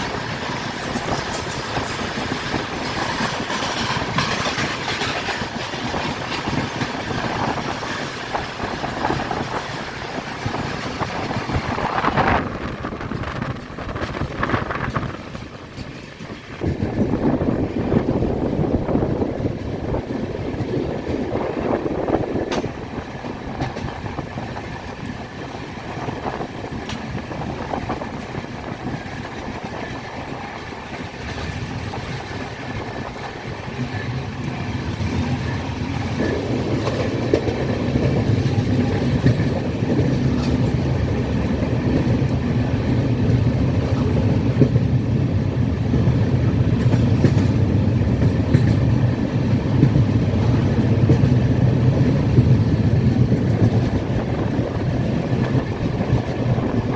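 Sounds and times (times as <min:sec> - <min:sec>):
train rumbling on rails: 0:00.0 - 0:56.9.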